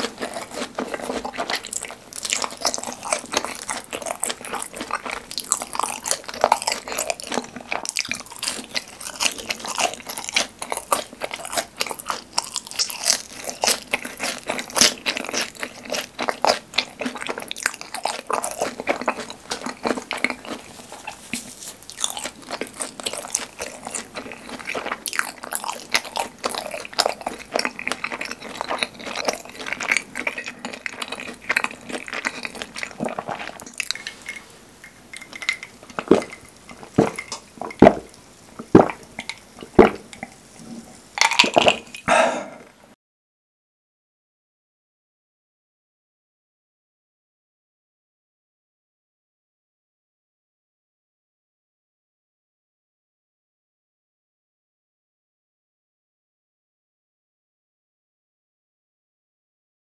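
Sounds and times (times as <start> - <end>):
crunching crispy snacks: 0.0 - 34.4, 41.2 - 42.0.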